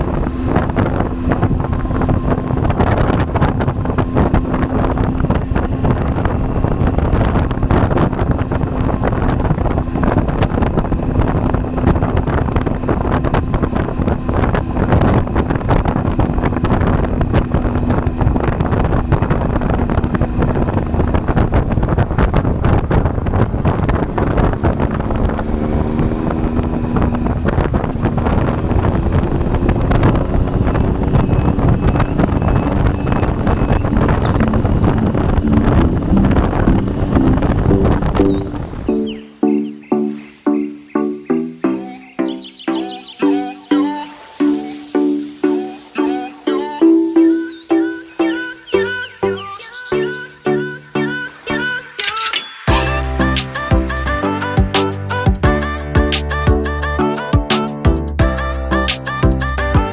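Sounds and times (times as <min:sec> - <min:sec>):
motorcycle engine running: 0:00.0 - 0:40.2
wind noise on microphone: 0:00.0 - 0:51.6.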